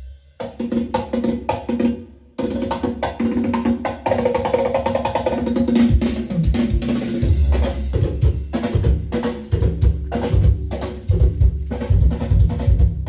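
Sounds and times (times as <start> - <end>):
music with heavy bass: 6.5 - 13.0.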